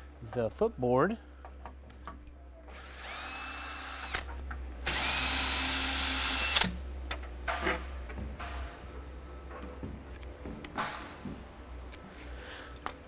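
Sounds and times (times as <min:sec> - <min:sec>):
power drill whining: 0:02.6 - 0:06.8.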